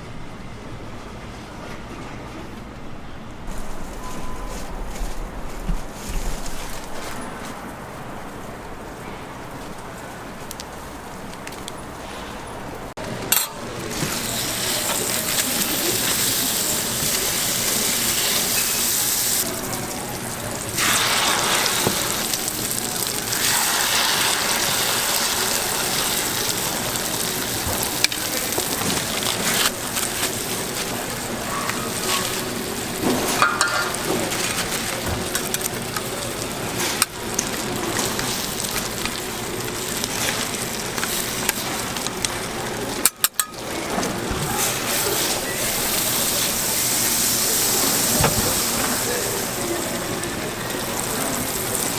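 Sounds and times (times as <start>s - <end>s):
food sizzling on a griddle: 13.8s - 43.7s, 44.4s - 51.9s.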